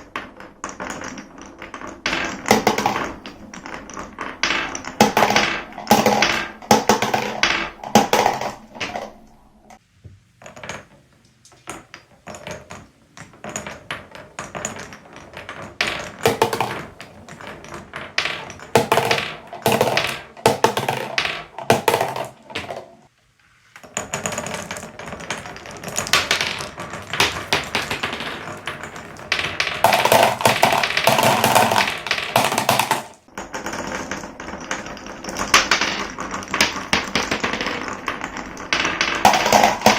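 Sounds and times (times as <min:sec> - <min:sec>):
marbles clattering on wooden tracks: 0:00.0 - 0:09.8, 0:10.4 - 0:23.1, 0:23.7 - 0:39.9.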